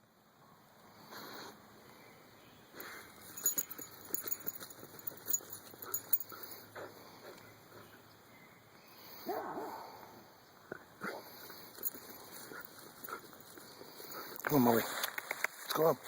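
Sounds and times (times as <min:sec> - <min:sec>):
rustling: 0:02.8 - 0:06.6.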